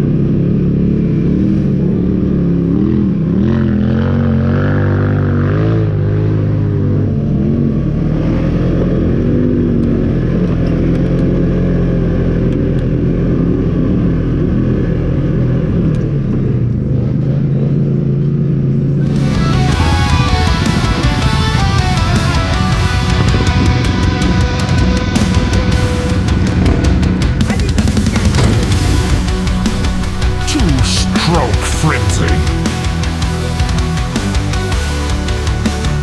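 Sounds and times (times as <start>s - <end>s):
off-road vehicle engine running: 0.0s - 36.0s.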